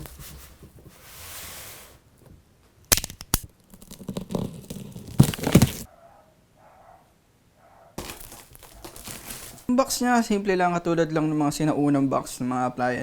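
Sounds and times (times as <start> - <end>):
cardboard cracks: 2.9 - 5.9, 8.0 - 9.7
cardboard tearing and crinkling: 2.9 - 5.9, 8.0 - 9.7
cardboard rustling: 3.6 - 5.9, 8.0 - 9.7.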